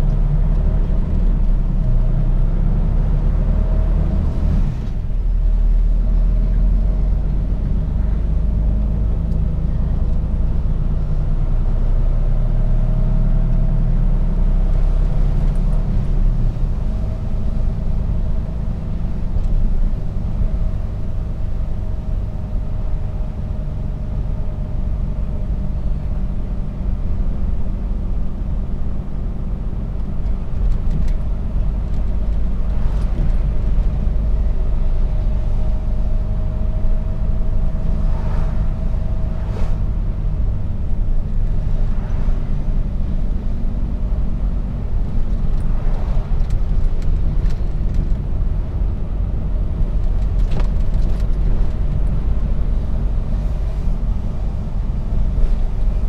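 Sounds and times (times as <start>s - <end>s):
road rumble: 0.0s - 56.0s
truck diesel engine drone: 0.0s - 56.0s.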